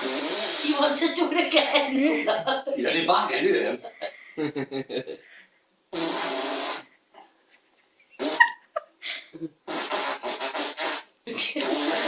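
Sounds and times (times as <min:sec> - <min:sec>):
person blowing raspberries: 0:00.0 - 0:00.9, 0:05.9 - 0:07.0, 0:08.2 - 0:08.6, 0:09.6 - 0:12.0.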